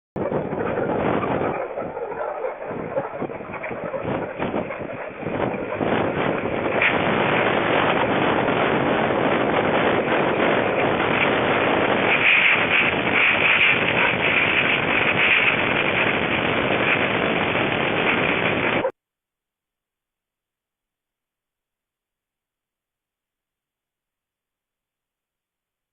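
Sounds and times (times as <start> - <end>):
storm wind blasting microphone: 0.2 - 18.9.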